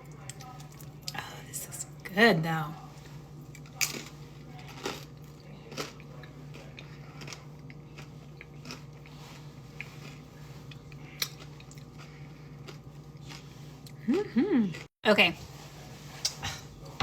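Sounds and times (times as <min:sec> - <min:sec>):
steady low hum: 0:00.0 - 0:17.0
crunchy crackers chewing: 0:03.4 - 0:14.1.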